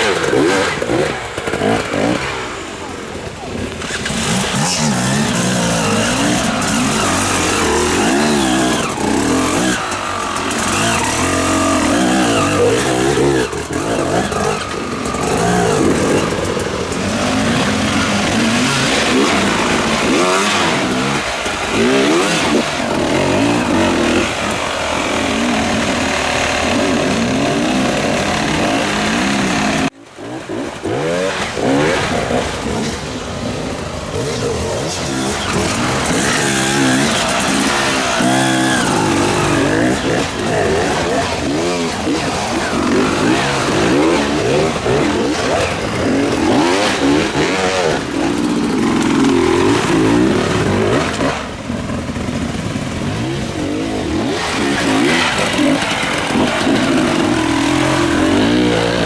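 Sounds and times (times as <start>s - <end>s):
motorcycle engines revving: 0.0s - 59.0s.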